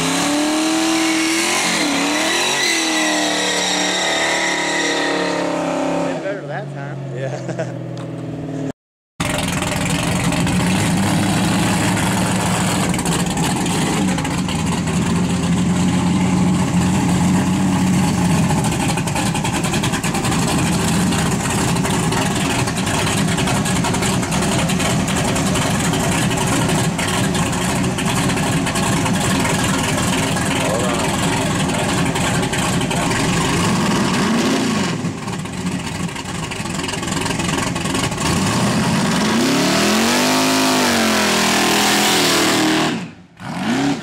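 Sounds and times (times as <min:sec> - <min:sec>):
car engine at high revs: 0:00.0 - 0:44.0.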